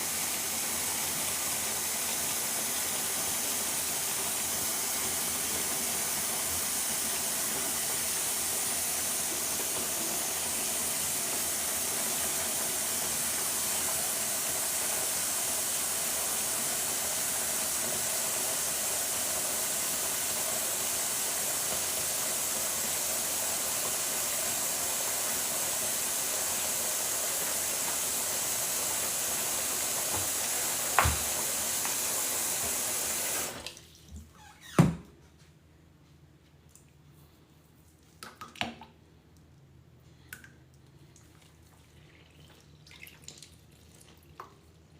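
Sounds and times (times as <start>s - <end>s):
tap water running: 0.0s - 34.4s.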